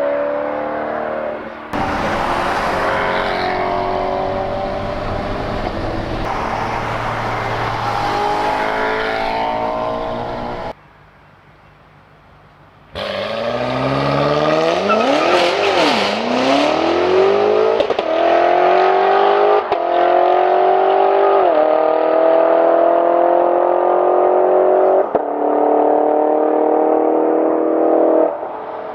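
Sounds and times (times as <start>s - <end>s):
car engine accelerating hard: 0.0s - 10.8s.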